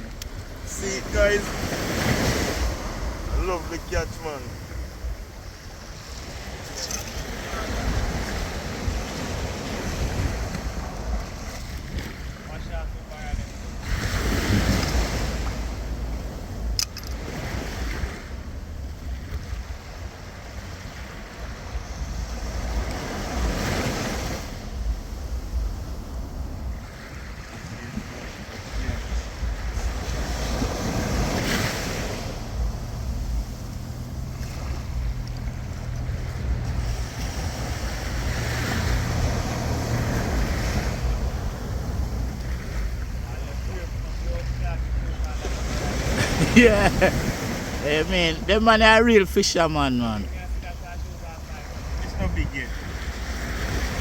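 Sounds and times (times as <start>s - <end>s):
wind buffeting microphone: 0.0s - 47.8s, 50.3s - 54.0s
boat motor humming: 0.0s - 54.0s
sea waves washing: 0.0s - 54.0s
water against hull: 0.0s - 54.0s
sharp click: 16.8s - 17.2s.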